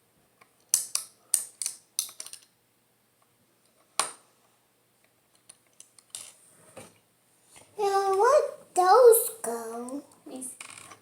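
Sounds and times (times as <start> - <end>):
plastic pieces clicking: 0.6 - 2.5.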